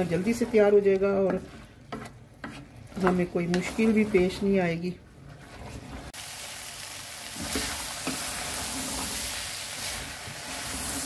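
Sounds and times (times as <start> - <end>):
chickpeas sizzling in oil: 5.4 - 11.0.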